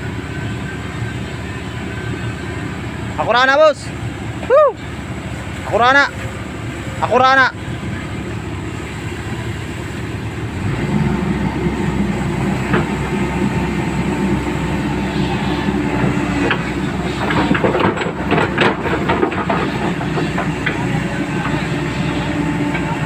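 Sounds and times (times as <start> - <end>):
backhoe engine running: 0.0 - 23.0
metallic clanks and rattles: 16.4 - 21.6.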